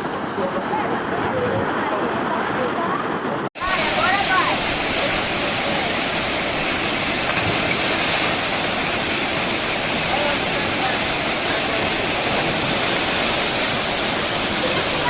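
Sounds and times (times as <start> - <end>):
waterfall rushing: 3.6 - 15.0.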